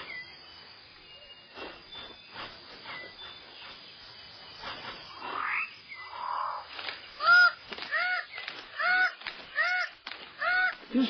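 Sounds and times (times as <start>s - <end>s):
rainforest birds calling: 0.0s - 11.0s
loud arched bird calls: 5.1s - 11.0s.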